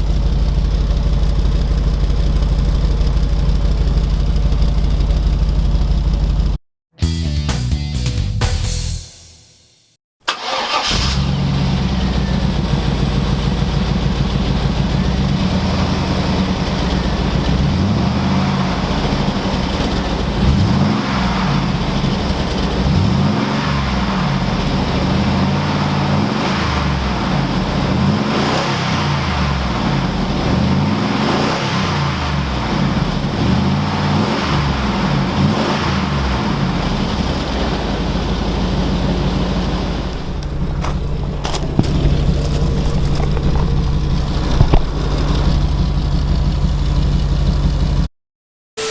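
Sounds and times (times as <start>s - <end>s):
car engine starting and idling: 0.0s - 6.6s, 10.2s - 48.1s
engine revving: 10.3s - 48.1s.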